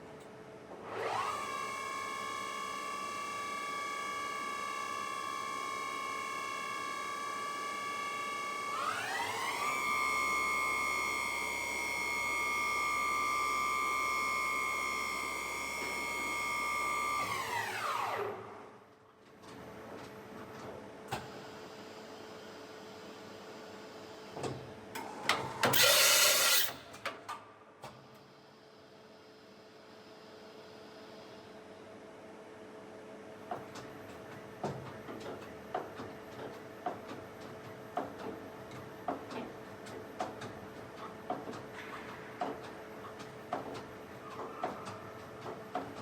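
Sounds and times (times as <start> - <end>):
machine spindle whine: 25.7 - 26.8.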